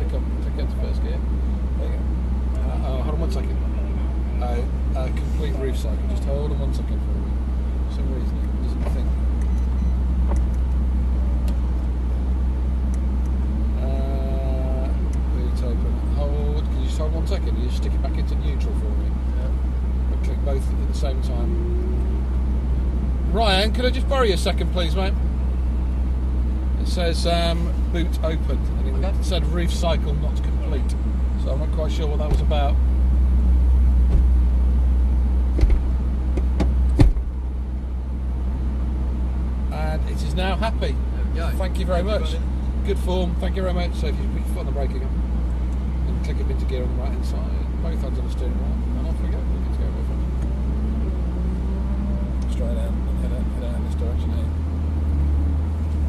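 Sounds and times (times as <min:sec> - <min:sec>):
car engine idling: 0:00.0 - 0:56.0
brief steady tone: 0:09.4 - 0:10.1
loud thump: 0:34.0 - 0:34.4, 0:35.5 - 0:37.3
sharp clicks and knocks: 0:35.5 - 0:37.3.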